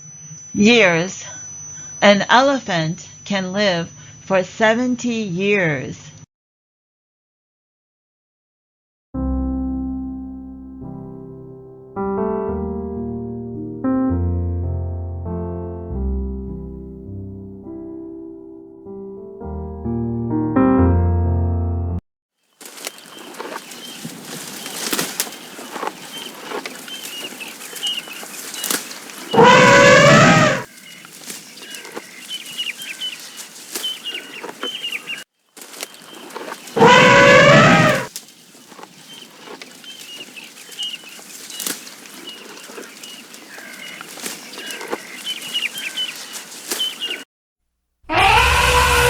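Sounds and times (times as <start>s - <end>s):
high chirps and clicks: 22.8s - 35.2s
loud pitched animal calls: 22.9s - 35.2s, 35.8s - 47.2s, 48.1s - 49.0s.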